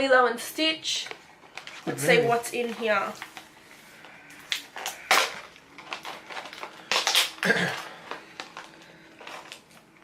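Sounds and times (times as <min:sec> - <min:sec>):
plastic packaging crinkling: 0:01.0 - 0:10.0.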